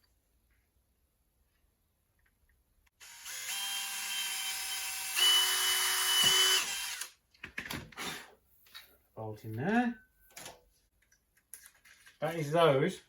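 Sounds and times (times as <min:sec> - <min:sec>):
electric drill drilling plastic: 0:03.0 - 0:07.2.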